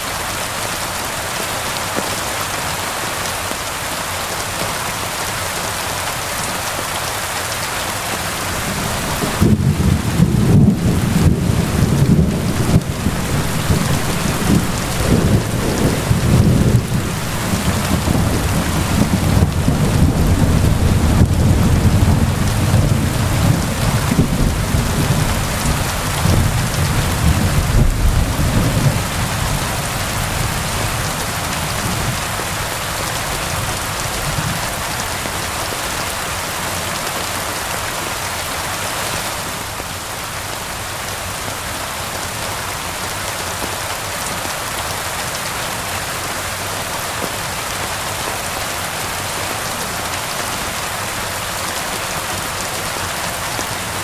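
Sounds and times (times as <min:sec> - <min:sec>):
steady rain: 0:00.0 - 0:54.0
rolling thunder: 0:08.6 - 0:31.0.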